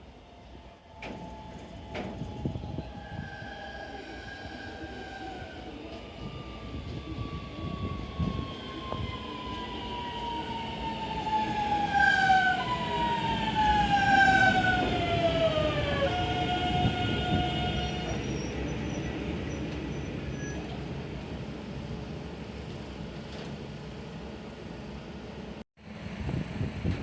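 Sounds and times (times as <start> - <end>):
electric train motor whine: 0.0 - 20.8
train rolling rumble: 0.0 - 27.0.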